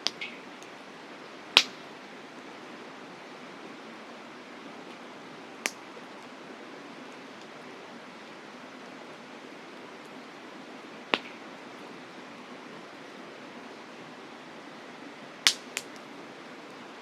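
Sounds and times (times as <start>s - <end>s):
campfire wood popping: 0.0s - 0.7s, 1.6s - 1.8s, 5.6s - 5.8s, 11.1s - 11.4s, 15.4s - 16.1s.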